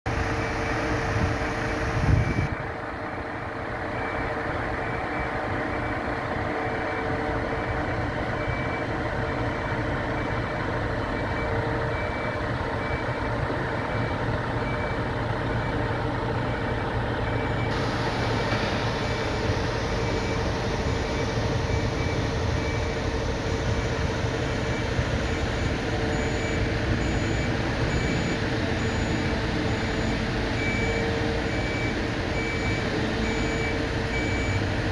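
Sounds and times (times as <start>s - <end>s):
diesel engine running: 0.1s - 34.9s
backup alarm beeps: 0.3s - 2.6s, 8.4s - 10.5s, 16.5s - 34.8s.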